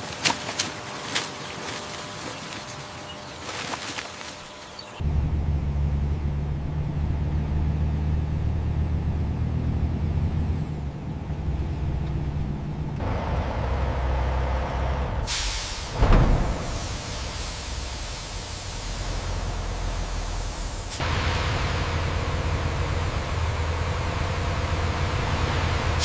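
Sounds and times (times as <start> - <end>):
hiss: 15.3 - 21.0
low machine rumble: 16.0 - 26.0.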